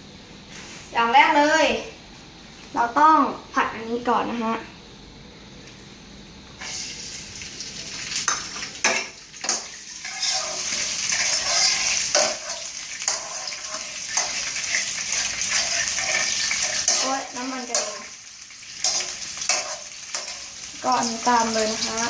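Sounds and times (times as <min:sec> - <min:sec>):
vegetables sizzling in oil: 0:06.6 - 0:22.0
spatula scraping a pan: 0:08.8 - 0:21.9.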